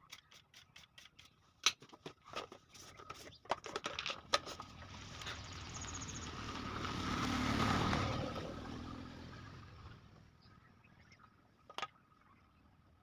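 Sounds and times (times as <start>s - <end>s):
motor vehicle passing by: 4.6s - 11.3s.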